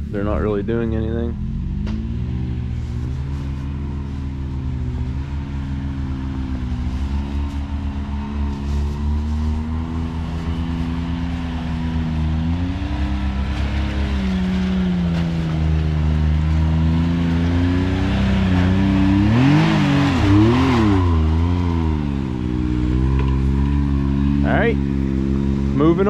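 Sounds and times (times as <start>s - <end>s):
off-road vehicle engine running: 0.0s - 26.0s
engine revving blips: 4.7s - 26.0s.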